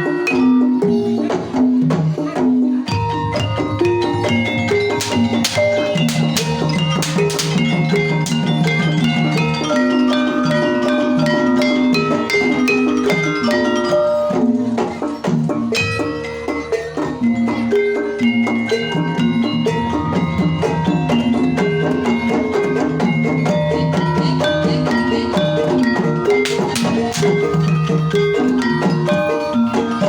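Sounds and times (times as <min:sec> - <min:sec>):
mallet percussion interlocking notes: 0:00.0 - 0:30.0
drum strokes: 0:00.1 - 0:30.0.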